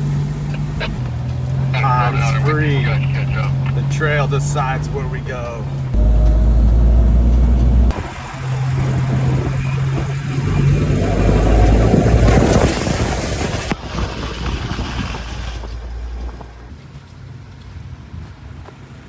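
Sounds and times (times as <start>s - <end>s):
car engine running: 0.0s - 13.7s
rushing noise: 0.0s - 16.0s.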